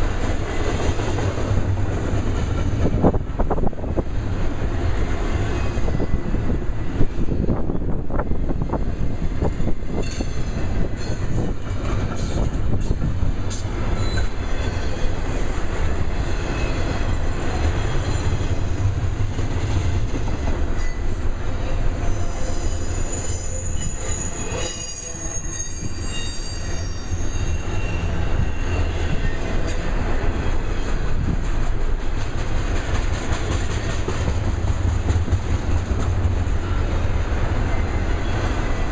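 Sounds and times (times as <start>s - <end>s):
train rumbling past: 0.0s - 38.9s
train wheels clicking: 9.5s - 38.9s
high wheel squeal: 14.0s - 15.4s, 20.8s - 29.8s.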